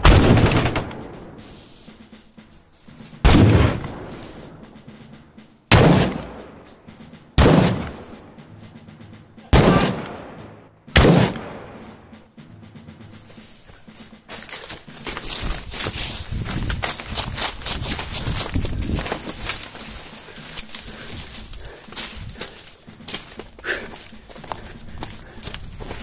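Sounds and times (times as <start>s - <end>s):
gunshots: 0.0s - 1.5s, 3.2s - 4.6s, 5.7s - 6.6s, 7.4s - 8.2s, 9.5s - 12.0s
quick footsteps: 0.8s - 26.0s
grass rustling: 1.2s - 4.8s, 12.5s - 26.0s.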